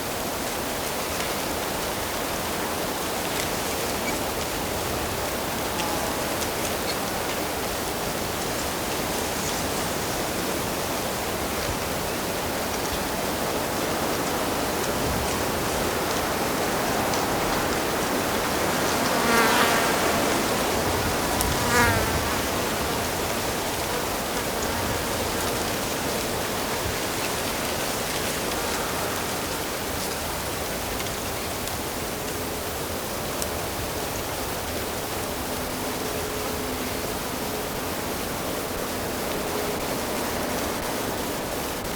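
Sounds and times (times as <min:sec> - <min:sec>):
insect buzzing: 0:18.7 - 0:26.2.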